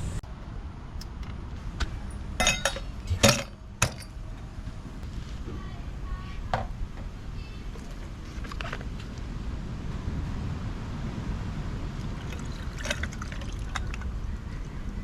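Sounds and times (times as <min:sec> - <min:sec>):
clinks and knocks of utensils: 0:02.4 - 0:04.2.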